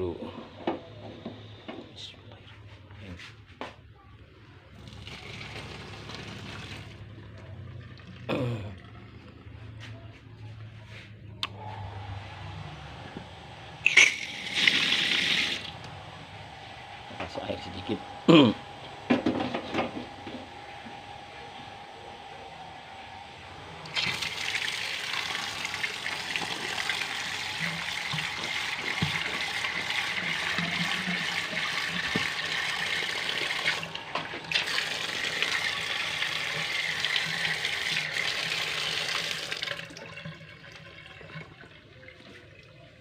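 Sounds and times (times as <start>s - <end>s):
water running into a pot: 4.8s - 9.6s, 13.8s - 15.9s, 23.8s - 43.0s.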